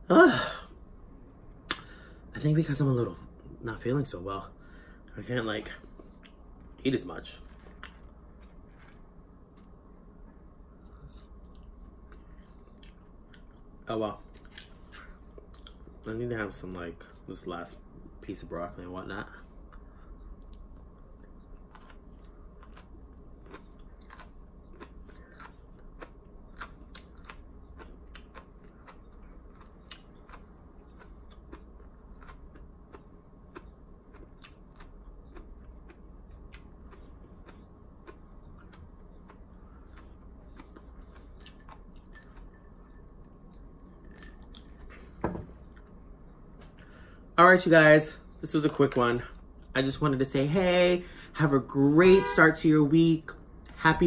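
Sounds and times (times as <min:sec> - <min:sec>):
low room hum: 0:00.0 - 0:54.0
man chewing food: 0:07.4 - 0:16.0, 0:19.6 - 0:47.1.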